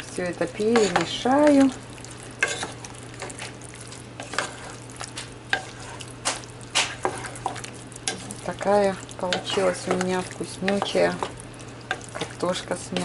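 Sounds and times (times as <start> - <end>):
faint sizzle: 0.0 - 13.0
steady low hum: 0.0 - 13.0
utensil scraping a pan: 0.6 - 1.7, 2.4 - 3.5, 4.2 - 4.8, 5.5 - 13.0.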